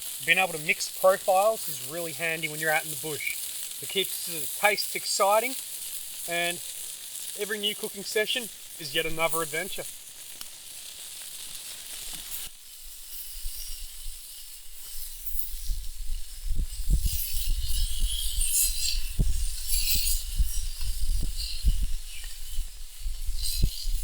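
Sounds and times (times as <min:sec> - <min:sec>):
sausages sizzling on griddle: 0:00.0 - 0:24.0
wind buffeting microphone: 0:15.8 - 0:24.0.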